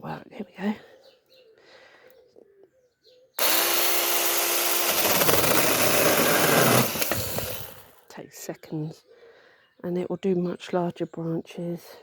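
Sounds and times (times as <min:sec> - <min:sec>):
chainsaw cutting through branch: 0:03.4 - 0:08.0
mini chainsaw motor whine: 0:03.4 - 0:08.0.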